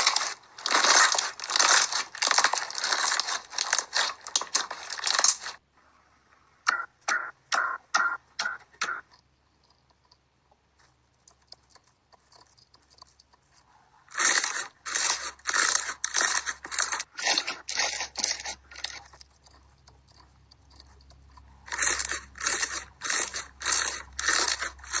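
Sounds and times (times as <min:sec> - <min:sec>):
slime crackling and popping: 0:00.0 - 0:05.6.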